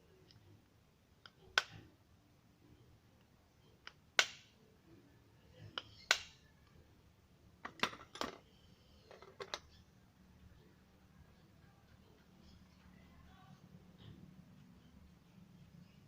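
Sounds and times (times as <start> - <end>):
tools clicking and tapping: 9.1 - 9.8.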